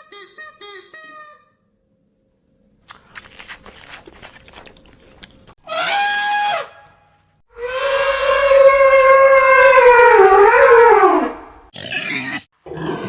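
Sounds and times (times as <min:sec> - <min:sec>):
loud drawn-out animal calls: 0:07.6 - 0:13.0.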